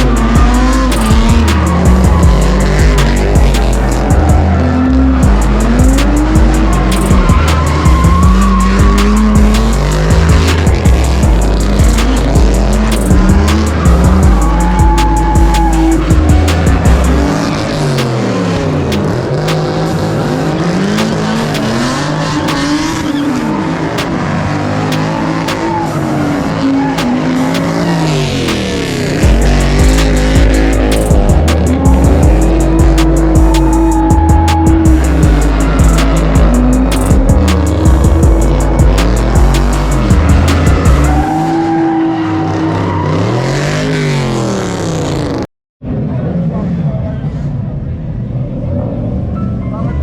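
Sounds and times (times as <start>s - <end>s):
tyres squealing: 0.0s - 18.2s
bass-heavy music: 0.0s - 44.4s
tires squealing: 0.0s - 47.8s
car engines revving: 0.0s - 49.4s.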